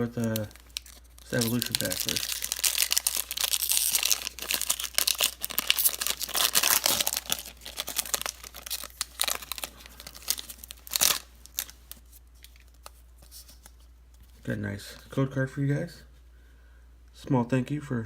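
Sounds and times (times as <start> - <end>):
foil wrapper tearing: 0.0 - 12.9
foil wrapper crinkling: 0.0 - 13.8.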